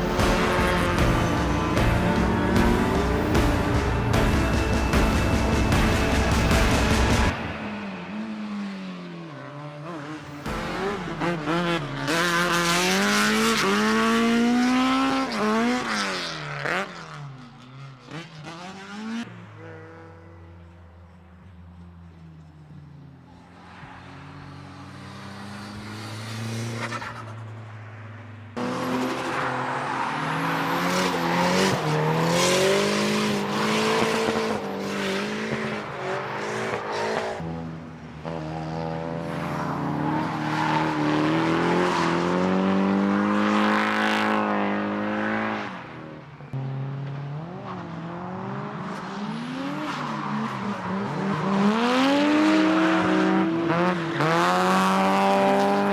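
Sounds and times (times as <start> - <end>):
race car engines revving: 0.0 - 20.8, 22.1 - 55.9.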